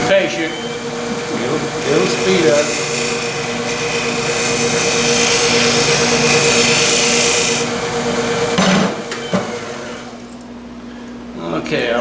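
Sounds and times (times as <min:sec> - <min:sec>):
wood lathe humming: 0:00.0 - 0:10.4
turning tool shaving wood: 0:00.8 - 0:08.5
loud scrape: 0:01.8 - 0:07.7.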